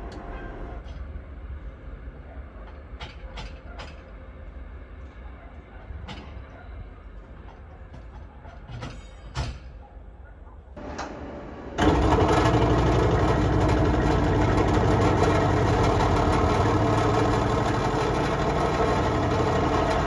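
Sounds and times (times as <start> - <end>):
train engine drone: 0.0 - 5.8, 10.8 - 20.0.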